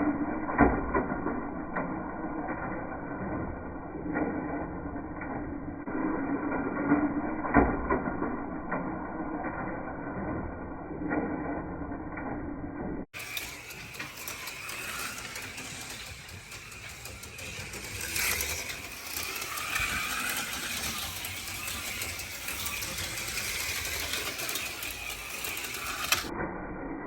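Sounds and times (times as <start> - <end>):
slot car motors whirring: 13.2 - 26.3.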